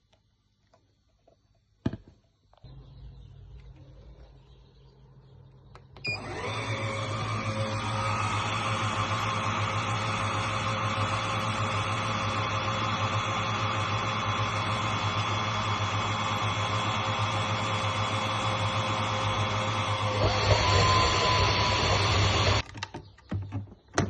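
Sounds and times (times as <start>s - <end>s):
wet-dry vacuum running: 6.0s - 22.6s.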